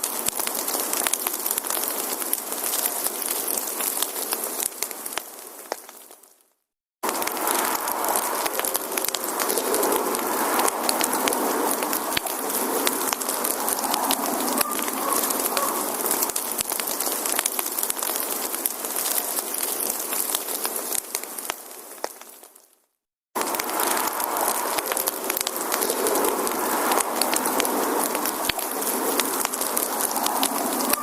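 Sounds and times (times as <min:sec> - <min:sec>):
fire hissing: 0:00.0 - 0:06.2, 0:07.0 - 0:22.6, 0:23.4 - 0:31.0
firewood crackling and popping: 0:00.0 - 0:31.0.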